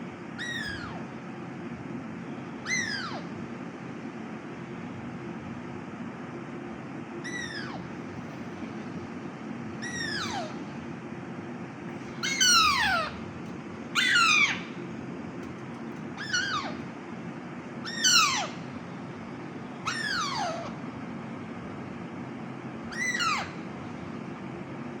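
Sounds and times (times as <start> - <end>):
low room hum: 0.0 - 25.0
parakeet calling: 0.4 - 1.0, 2.6 - 3.3, 7.2 - 8.0, 9.8 - 10.7, 12.0 - 13.2, 13.9 - 14.9, 16.1 - 16.9, 17.8 - 18.7, 19.8 - 20.8, 22.9 - 23.7.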